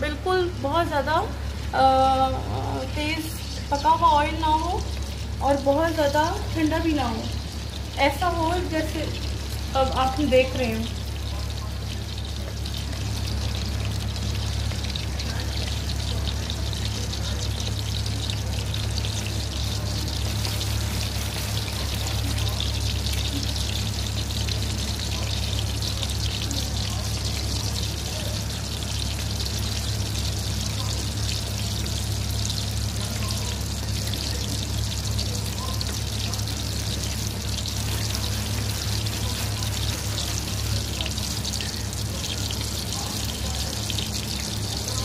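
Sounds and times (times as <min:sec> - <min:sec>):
chicken deep-frying in oil: 0:00.0 - 0:45.0.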